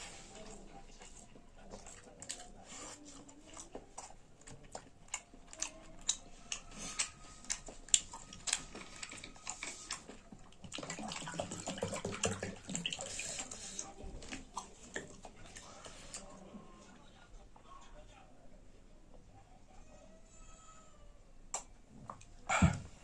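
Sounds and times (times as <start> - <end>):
chewing mouth noises: 0.4 - 16.4.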